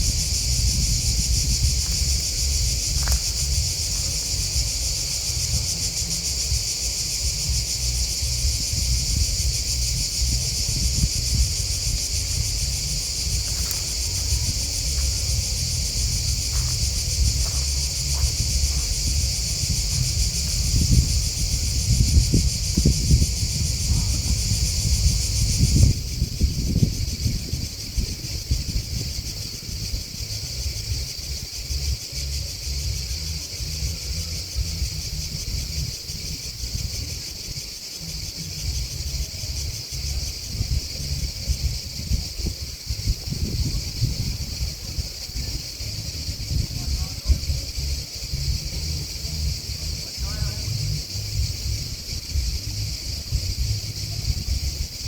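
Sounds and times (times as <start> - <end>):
grasshoppers and crickets chirping: 0.0 - 55.0
low gusting rumble: 0.0 - 55.0.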